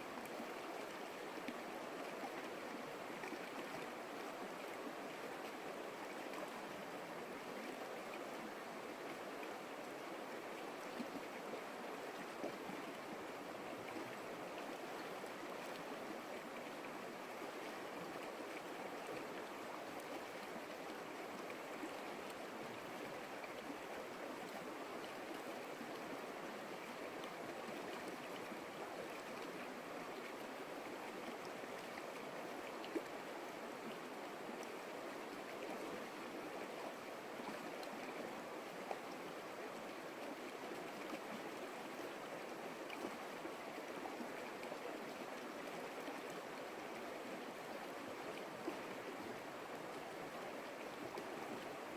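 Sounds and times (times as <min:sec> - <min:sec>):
creek water flowing: 0:00.0 - 0:51.9.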